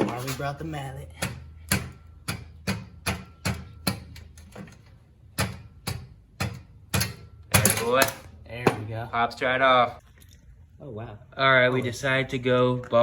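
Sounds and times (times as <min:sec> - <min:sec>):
mallet striking metal pipe: 0:01.2 - 0:04.2.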